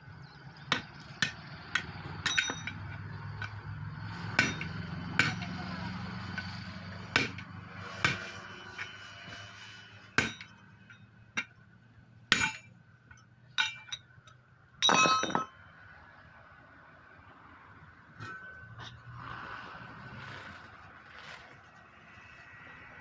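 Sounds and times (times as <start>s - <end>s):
metal tools clinking on tyre rim: 0.8s - 9.5s, 10.1s - 15.7s, 18.2s - 19.3s.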